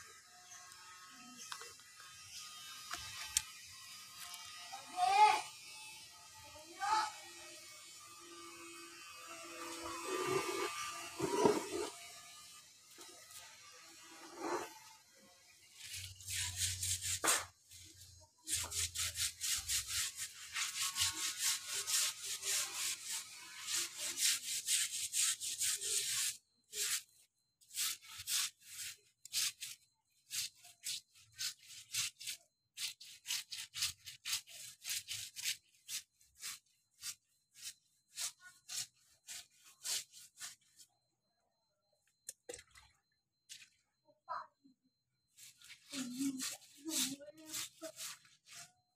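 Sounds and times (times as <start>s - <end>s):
scratchy rubbing strokes: 9.6s - 12.0s, 14.0s - 14.8s, 15.8s - 40.9s, 45.3s - 48.8s.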